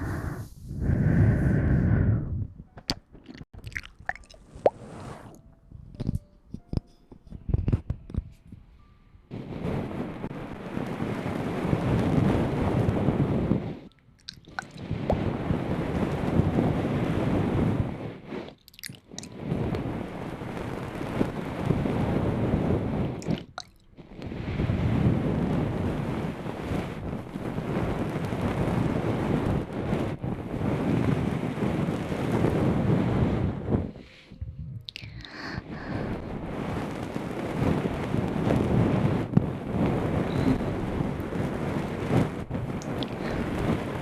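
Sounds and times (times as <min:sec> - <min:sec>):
slow breaths blown on microphone: 0:00.0 - 0:02.6, 0:24.0 - 0:31.4, 0:32.0 - 0:44.0.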